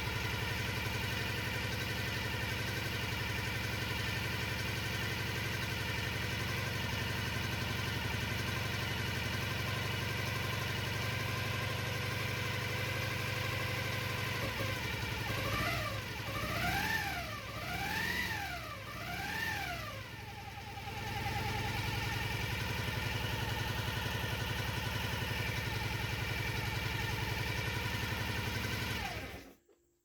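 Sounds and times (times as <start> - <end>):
motorcycle engine idling and revving: 0.0 - 29.8.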